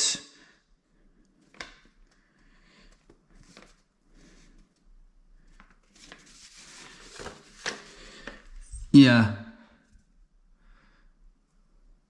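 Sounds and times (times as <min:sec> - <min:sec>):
soft rustles: 0:01.3 - 0:08.9.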